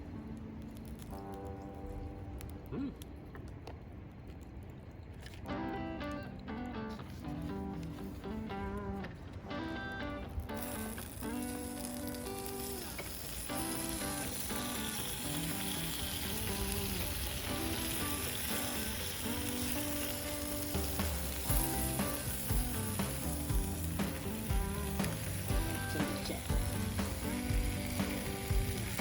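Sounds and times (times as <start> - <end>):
background music: 5.4 - 29.0
meat sizzling on hot plate: 10.4 - 29.0.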